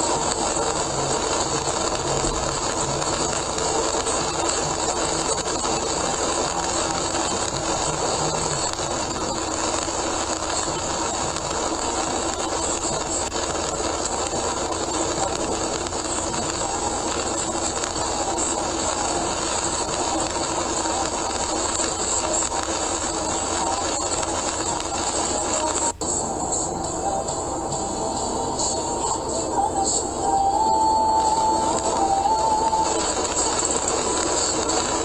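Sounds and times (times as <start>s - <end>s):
heavy rain on car: 0.0s - 26.0s, 30.8s - 35.0s
tyres hissing on wet road: 30.6s - 35.0s.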